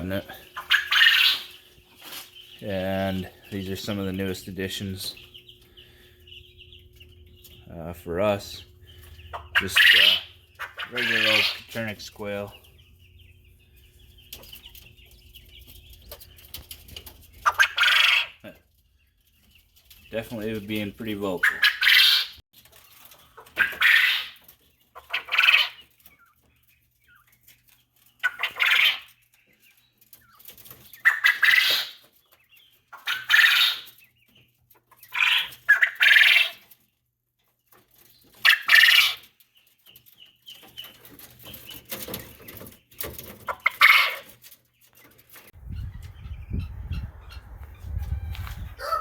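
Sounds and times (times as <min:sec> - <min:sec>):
quail calling: 0:00.0 - 0:04.0, 0:04.7 - 0:12.5, 0:17.3 - 0:18.6, 0:21.2 - 0:22.4, 0:23.4 - 0:26.4, 0:28.2 - 0:29.2, 0:30.2 - 0:32.1, 0:32.9 - 0:34.1, 0:34.9 - 0:36.6, 0:38.4 - 0:39.3, 0:43.4 - 0:44.4, 0:45.6 - 0:49.0.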